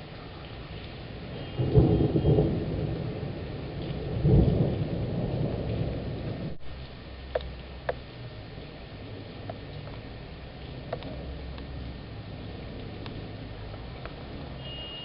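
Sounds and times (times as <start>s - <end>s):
thunder rumbling: 0.0s - 7.0s
rain hissing: 0.0s - 15.0s.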